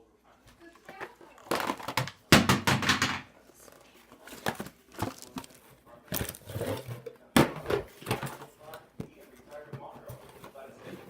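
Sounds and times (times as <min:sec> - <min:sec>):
plastic package scraping and rustling: 0:03.6 - 0:07.1.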